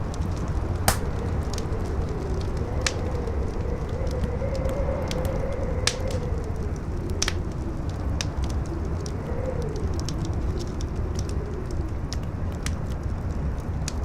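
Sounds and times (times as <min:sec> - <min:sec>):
strong wind howling: 0:00.0 - 0:13.8
campfire crackling and popping: 0:00.0 - 0:14.0.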